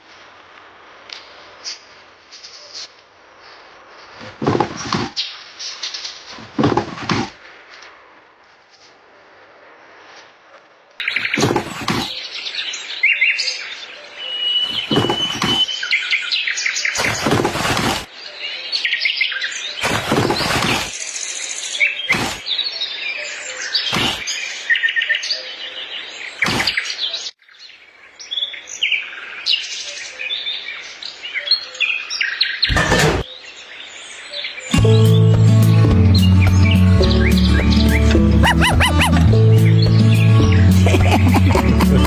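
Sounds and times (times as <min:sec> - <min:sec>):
small birds chirping: 0:11.0 - 0:41.9
short sharp noises: 0:22.1 - 0:22.4.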